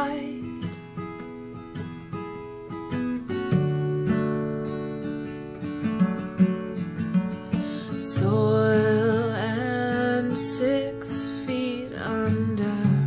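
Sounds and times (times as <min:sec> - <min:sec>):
acoustic guitar strummed and picked: 0:00.0 - 0:13.0.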